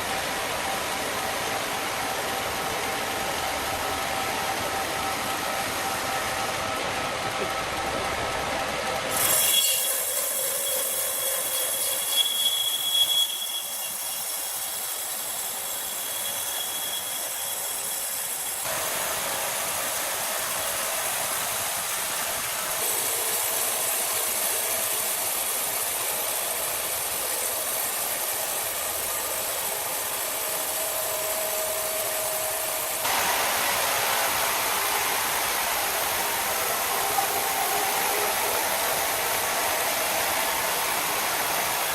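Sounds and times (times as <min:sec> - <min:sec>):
power tool working wood: 0:07.4 - 0:18.9.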